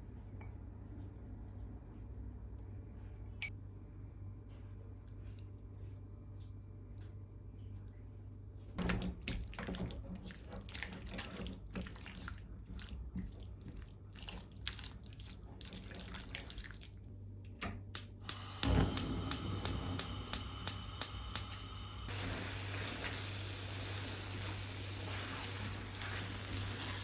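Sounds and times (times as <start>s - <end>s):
kitchen tap running: 18.2s - 27.0s.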